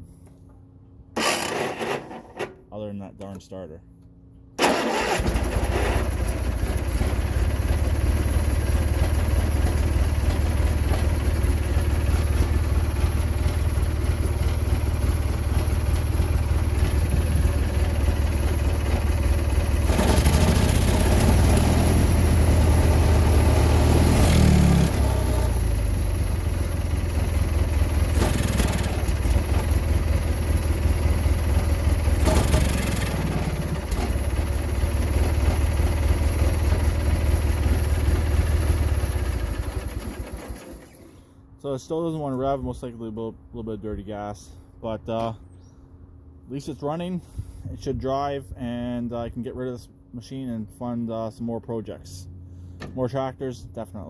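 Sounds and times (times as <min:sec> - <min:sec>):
garden tractor engine running: 0:01.2 - 0:02.5, 0:04.6 - 0:41.2.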